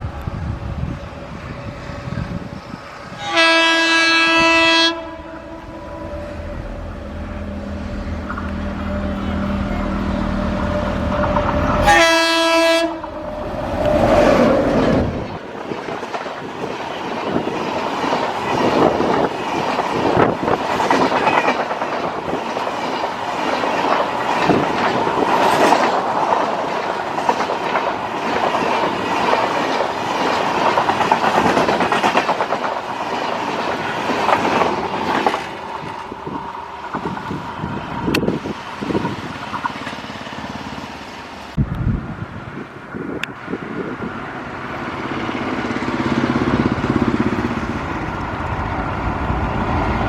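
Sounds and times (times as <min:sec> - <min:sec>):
locomotive hum: 0:00.0 - 0:50.0
train horn: 0:03.1 - 0:14.5
wheels clacking over rail joints: 0:04.5 - 0:41.6.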